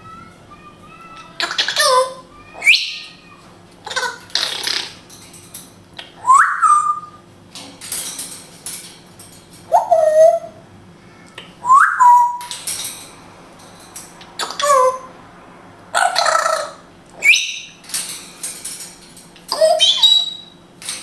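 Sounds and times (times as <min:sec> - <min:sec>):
parrot rising whistles: 0:06.2 - 0:07.2, 0:11.6 - 0:12.4, 0:17.2 - 0:17.8.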